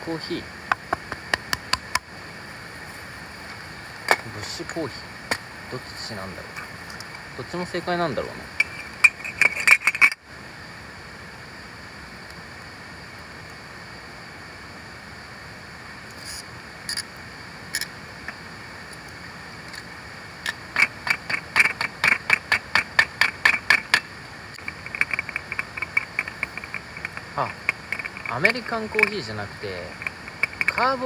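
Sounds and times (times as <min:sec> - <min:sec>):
rain: 0:23.2 - 0:31.0.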